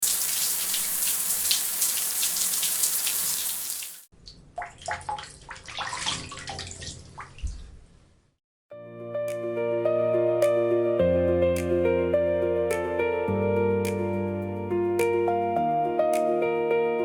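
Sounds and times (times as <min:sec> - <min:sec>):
water running from a tap: 0:00.0 - 0:04.1
water splashing and dripping: 0:00.0 - 0:07.7.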